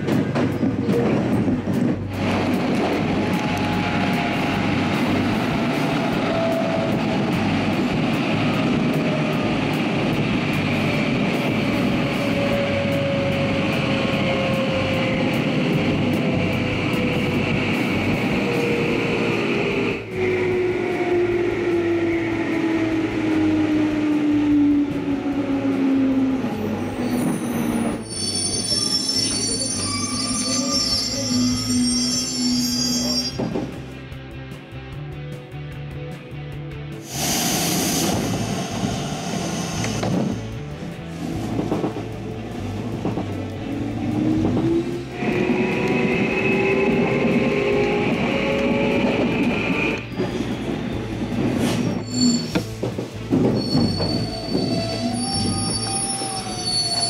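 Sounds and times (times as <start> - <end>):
train running rumble: 0.0 - 36.3, 36.9 - 57.0
high brake squealing: 26.8 - 33.6, 50.0 - 57.0.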